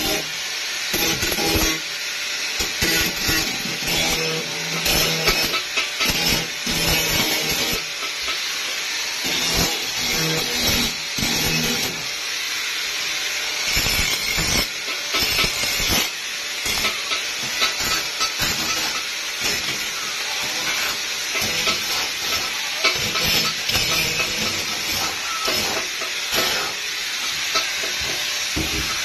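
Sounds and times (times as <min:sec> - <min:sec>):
angle grinder on steel: 0:00.0 - 0:29.0.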